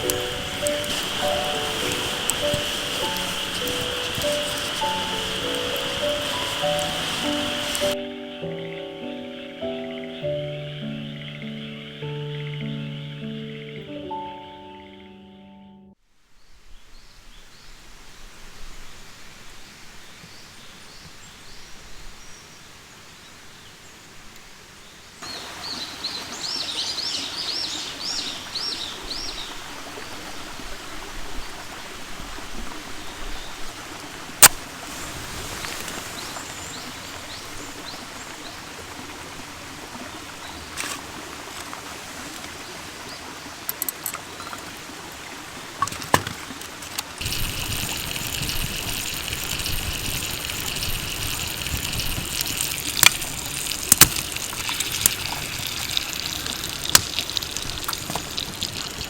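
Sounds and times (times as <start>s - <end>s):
bird chirping: 0.0s - 15.9s, 25.2s - 29.6s
outdoor background hiss: 0.0s - 59.0s.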